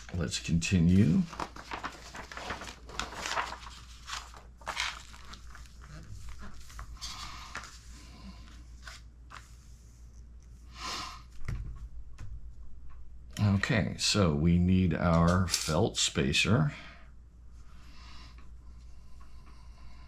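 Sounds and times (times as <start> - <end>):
plastic bag crinkling and tearing: 1.1 - 6.5.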